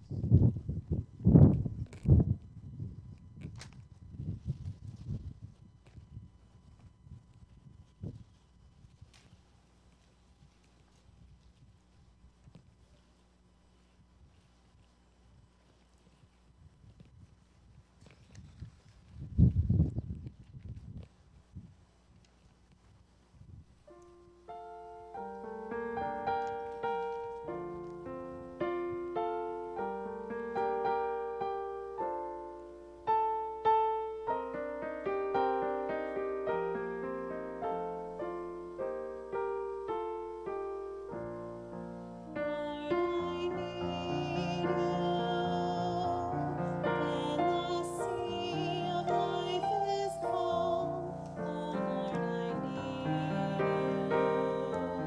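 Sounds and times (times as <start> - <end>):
piano melody: 23.9 - 55.0
held wavering notes: 42.3 - 55.0.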